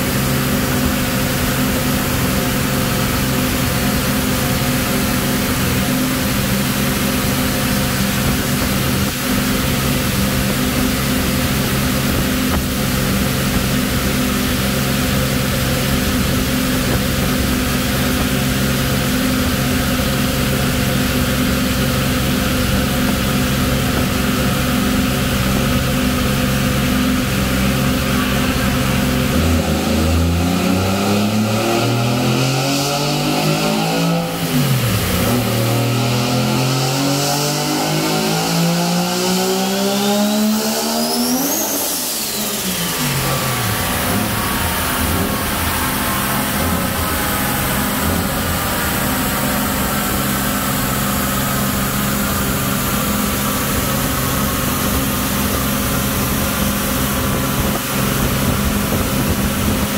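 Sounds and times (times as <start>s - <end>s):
high whine: 0.0s - 59.9s
rotary engine revving: 27.8s - 59.9s.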